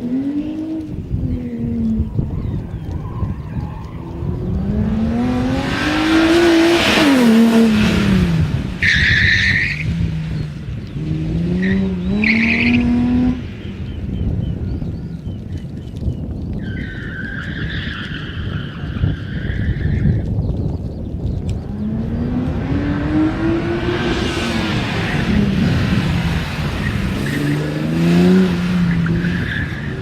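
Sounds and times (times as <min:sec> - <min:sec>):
tyre noise rushing: 0:00.0 - 0:13.5, 0:15.4 - 0:30.0
car engine revving: 0:03.4 - 0:13.6, 0:21.5 - 0:30.0.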